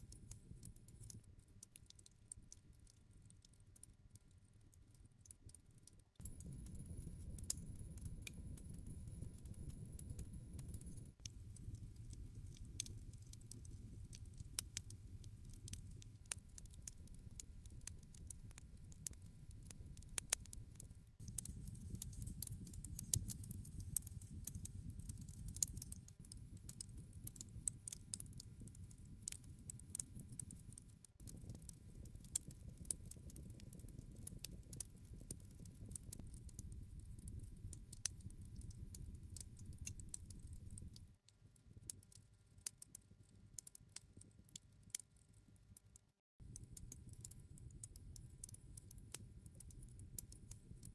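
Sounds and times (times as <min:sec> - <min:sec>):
campfire crackles and pops: 0:05.4 - 0:45.4, 0:46.5 - 0:50.9
low rumble of flames: 0:06.2 - 0:20.6, 0:21.2 - 0:41.0.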